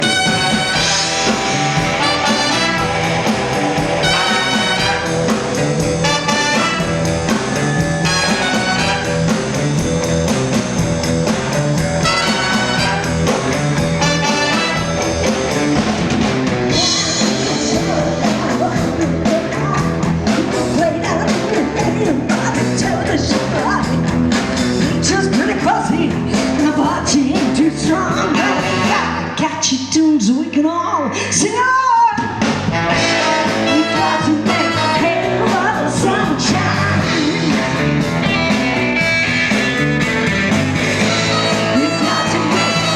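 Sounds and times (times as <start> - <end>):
punchy horn phrase: 0.0 - 7.4, 8.0 - 9.7, 12.0 - 15.3, 32.7 - 35.4, 40.4 - 42.9
live rock band with brass: 0.0 - 29.4, 31.9 - 42.9.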